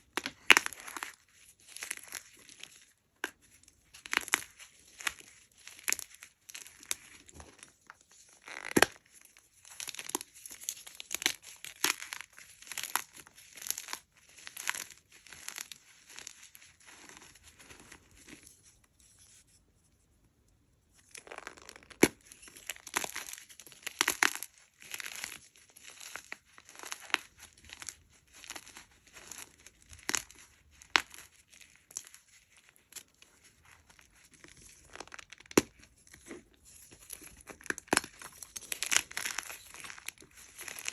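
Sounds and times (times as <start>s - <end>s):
chalk blocks being crushed: 32.8s - 40.9s.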